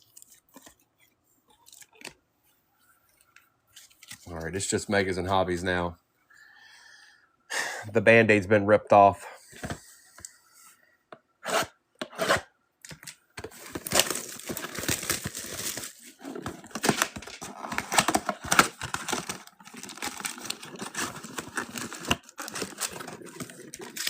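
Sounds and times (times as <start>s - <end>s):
packaging tearing and crinkling: 12.9s - 24.0s.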